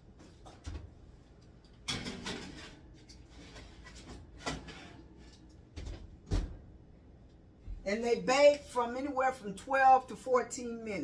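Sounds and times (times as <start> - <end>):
baking sheet scraping clatter: 2.0 - 5.4.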